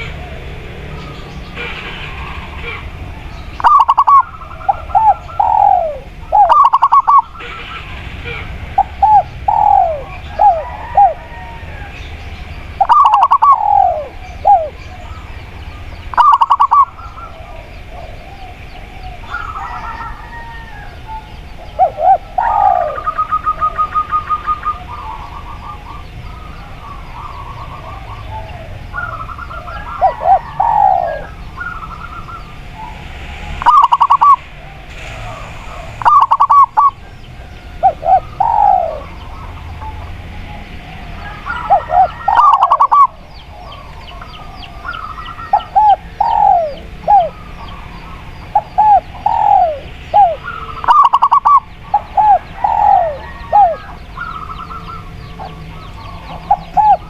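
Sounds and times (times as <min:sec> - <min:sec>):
birds chirping: 0:00.0 - 0:57.0
doves cooing: 0:00.0 - 0:57.0.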